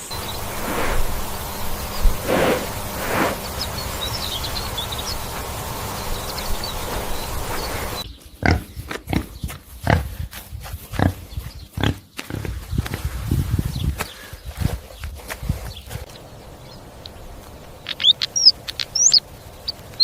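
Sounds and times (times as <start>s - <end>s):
farm animal grunting: 0.0s - 5.8s, 7.3s - 12.5s
steady background hiss: 0.0s - 8.1s.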